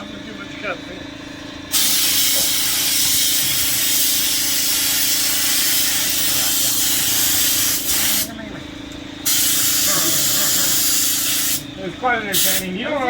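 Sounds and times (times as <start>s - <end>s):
pressurised air hissing from nozzle: 1.7s - 8.3s, 9.2s - 11.7s, 12.4s - 12.7s.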